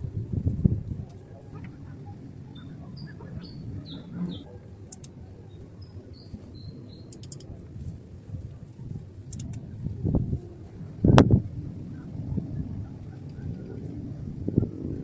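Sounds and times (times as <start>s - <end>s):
steady low rumble: 0.0s - 15.0s
small bird chirping: 1.7s - 7.6s.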